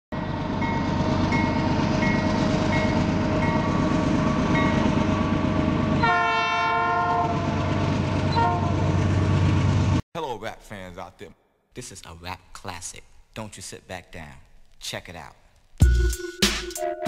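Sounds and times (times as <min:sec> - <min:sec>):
freight train rumbling: 0:00.1 - 0:10.0
locomotive air horn blast: 0:06.0 - 0:07.6, 0:08.3 - 0:08.8.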